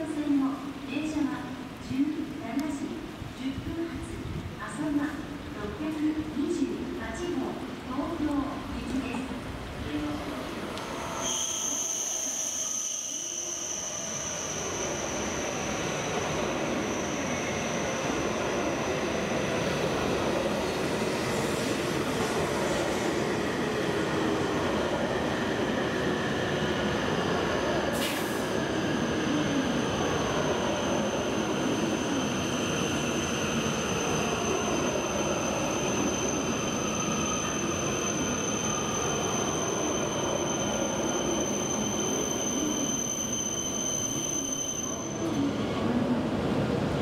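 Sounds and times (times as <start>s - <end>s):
train rolling on tracks: 8.0s - 47.0s
high-pitched squeal: 10.9s - 18.0s, 29.8s - 45.4s.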